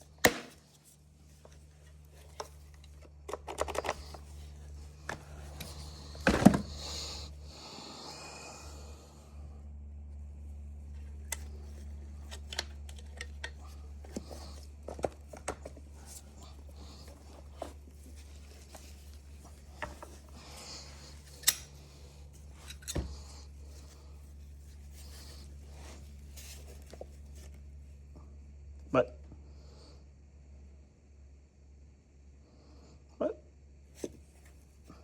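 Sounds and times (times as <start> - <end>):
steady low hum: 0.0 - 35.0
tools clicking and knocking: 21.2 - 21.8.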